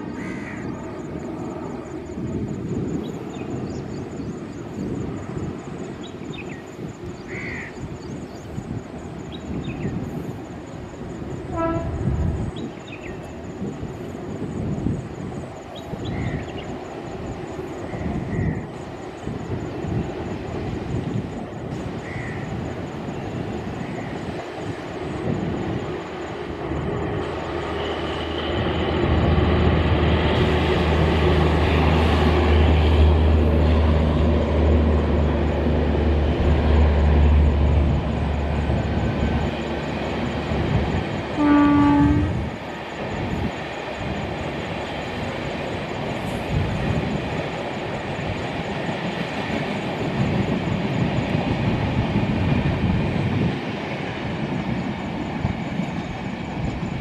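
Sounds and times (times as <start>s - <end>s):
passenger train rumbling past: 0.0s - 57.0s
train horn blast: 11.5s - 12.2s, 41.4s - 42.5s.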